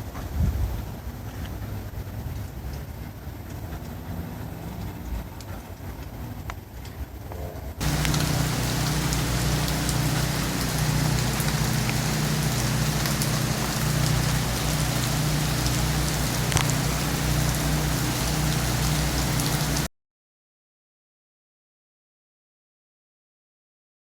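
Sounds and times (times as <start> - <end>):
rain falling: 7.8 - 19.9
steady low hum: 7.8 - 19.9.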